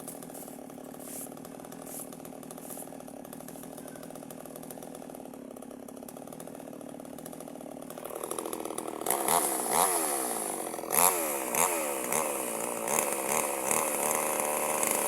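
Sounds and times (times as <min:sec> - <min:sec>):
small chainsaw engine running: 0:00.0 - 0:15.0.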